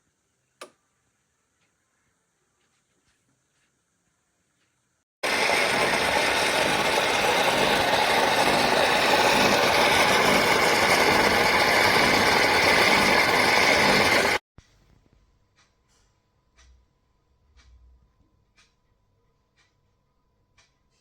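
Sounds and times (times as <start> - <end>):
espresso machine buzzing: 5.2 - 14.4.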